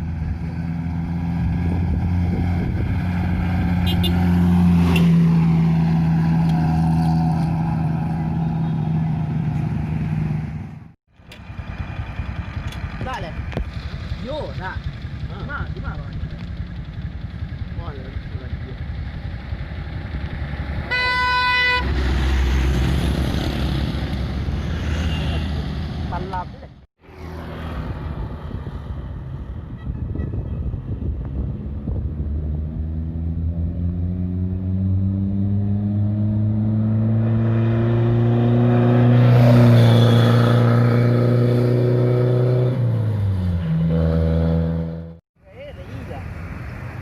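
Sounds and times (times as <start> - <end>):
tyre and road noise: 0.0 - 47.0
vehicle horn blast: 3.8 - 4.2, 20.9 - 21.9, 25.0 - 25.6, 39.8 - 40.5.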